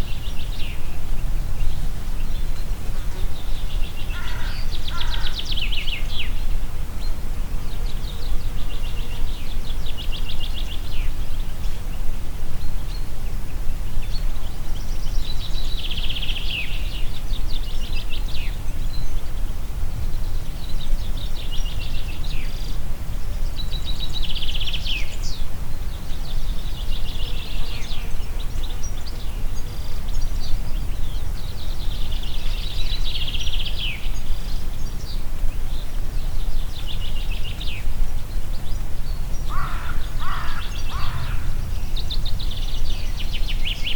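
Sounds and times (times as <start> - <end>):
wind blowing through forest: 0.0 - 43.9
songbird trilling: 3.1 - 6.4, 38.5 - 43.9.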